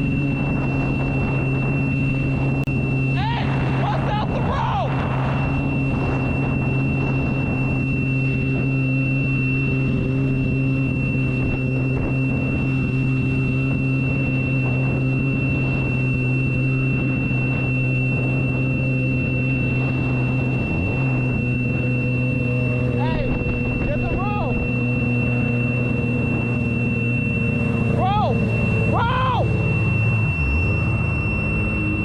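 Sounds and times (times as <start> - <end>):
watercraft engine running: 0.0 - 32.0.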